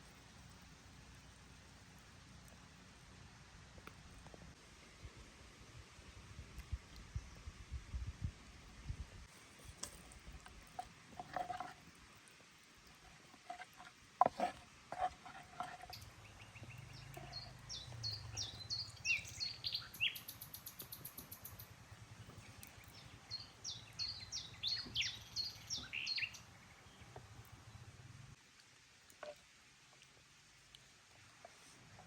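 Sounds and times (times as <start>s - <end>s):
songbird chirping: 14.9s - 27.9s.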